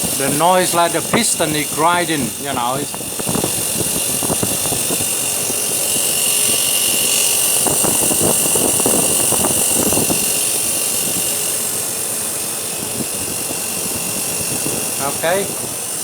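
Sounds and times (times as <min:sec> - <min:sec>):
compressor knocks: 0:00.0 - 0:06.6
freezer compressor grinding: 0:00.0 - 0:16.0.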